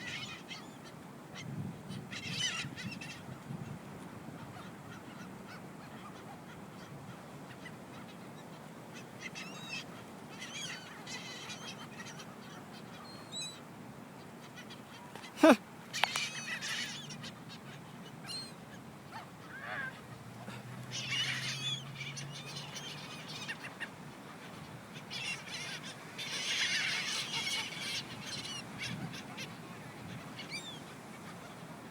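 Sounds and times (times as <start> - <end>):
seagulls calling: 14.5 - 18.6, 19.2 - 31.6
overlapping gull squawks: 15.2 - 17.0.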